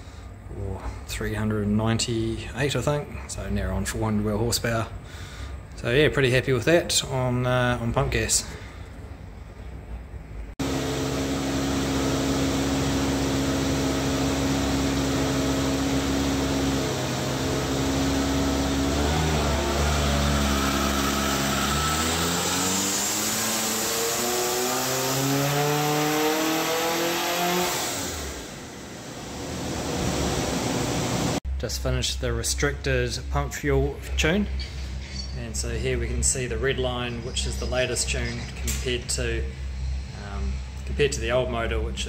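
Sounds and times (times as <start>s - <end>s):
car engine revving on dyno: 10.6s - 31.4s.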